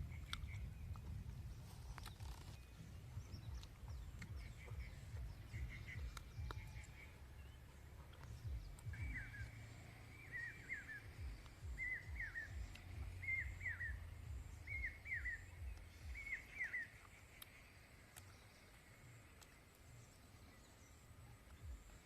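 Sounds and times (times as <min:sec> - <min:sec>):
low thumps and rumble: 0:00.0 - 0:07.0, 0:07.6 - 0:10.3, 0:11.0 - 0:16.4
bird calling: 0:00.0 - 0:22.0.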